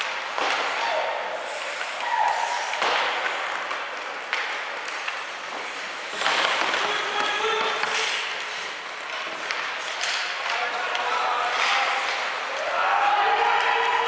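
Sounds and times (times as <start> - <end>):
crowd noise: 0.0 - 14.0
crowd shouting: 12.4 - 14.0.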